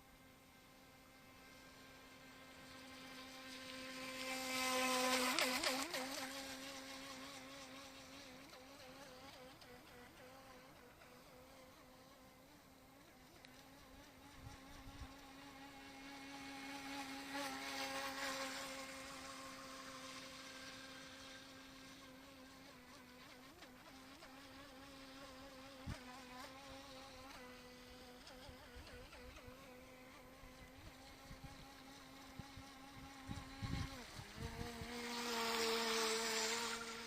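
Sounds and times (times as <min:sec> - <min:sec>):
electric motor whining: 0:24.6 - 0:37.0.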